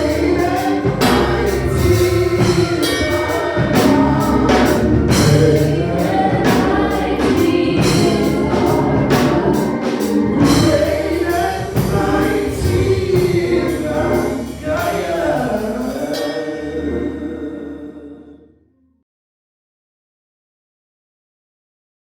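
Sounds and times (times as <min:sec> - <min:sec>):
drums and band backing: 0:00.0 - 0:16.4
gospel choir singing: 0:00.0 - 0:18.6.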